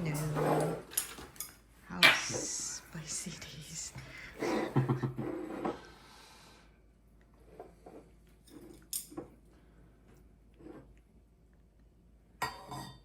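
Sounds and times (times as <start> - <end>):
bowls and utensils clinking: 0.0 - 5.5, 12.4 - 13.0.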